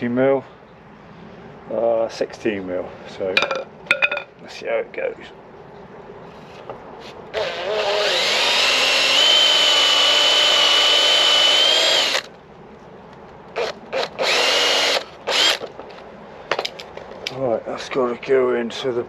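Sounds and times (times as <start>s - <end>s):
electric drill boring into wood: 7.3s - 12.3s, 13.6s - 15.7s.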